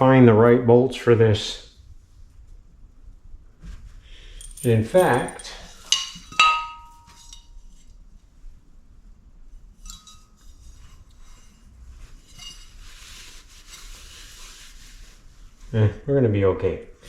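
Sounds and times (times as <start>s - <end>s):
soft rummaging: 3.6s - 7.6s
metal bolts clinking: 4.4s - 7.4s.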